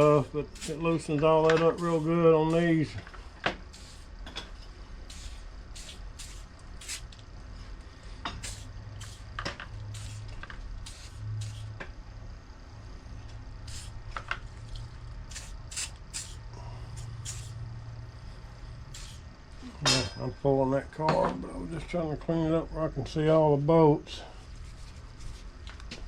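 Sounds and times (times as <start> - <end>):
spray cleaner bursts: 15.3 - 16.4, 17.0 - 17.5, 18.9 - 19.2.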